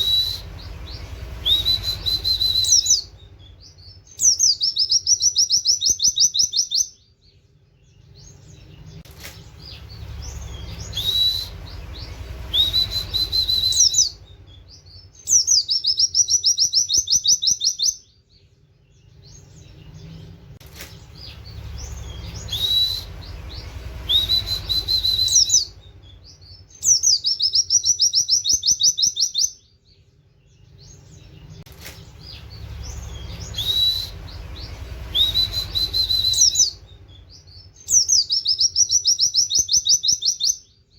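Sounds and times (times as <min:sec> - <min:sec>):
bird upward whistles: 0:00.0 - 0:03.1, 0:09.6 - 0:14.2, 0:21.8 - 0:25.8, 0:32.8 - 0:40.6
low rumbling noise: 0:00.0 - 0:05.0, 0:07.8 - 0:16.1, 0:18.6 - 0:27.7, 0:30.4 - 0:38.4
bird high trill: 0:00.0 - 0:07.0, 0:09.6 - 0:18.1, 0:21.1 - 0:29.6.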